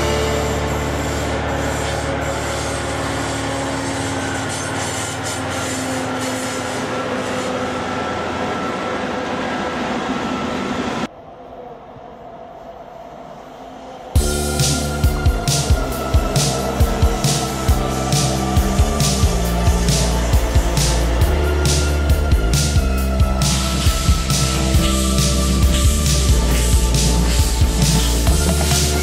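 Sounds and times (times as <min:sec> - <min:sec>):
locomotive engine hum: 0:00.0 - 0:11.7, 0:14.0 - 0:29.0
freight wagons rumbling on rails: 0:14.2 - 0:29.0.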